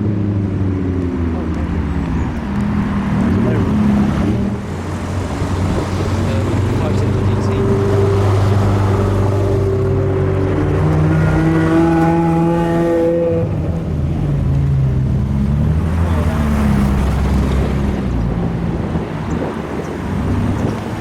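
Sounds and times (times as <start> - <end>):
sports car engines revving: 0.0 - 21.0.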